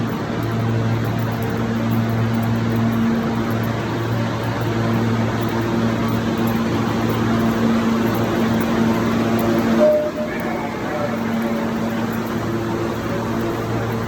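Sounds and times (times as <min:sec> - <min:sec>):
steady low hum: 0:00.0 - 0:14.0
subway train rushing: 0:01.6 - 0:14.0.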